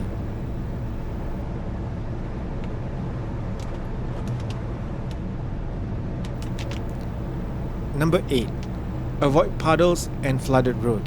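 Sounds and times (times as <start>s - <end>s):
car road and engine rumble: 0.0s - 1.4s, 6.4s - 11.0s
faint clicks: 6.3s - 10.6s.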